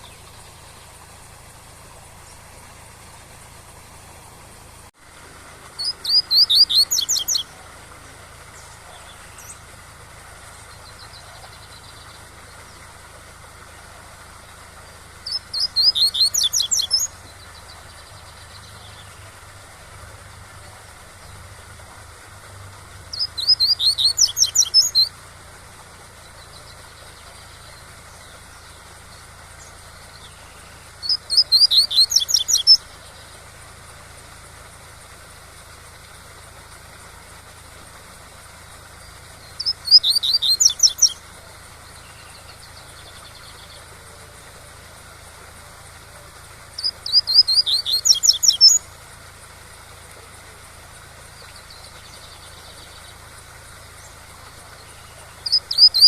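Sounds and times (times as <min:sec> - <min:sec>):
waterfall rushing: 0:00.0 - 0:13.8
bird singing high repeated notes: 0:05.8 - 0:09.7, 0:15.2 - 0:19.1, 0:23.1 - 0:25.2, 0:29.6 - 0:33.3, 0:39.0 - 0:41.2, 0:46.8 - 0:48.8, 0:54.9 - 0:56.0.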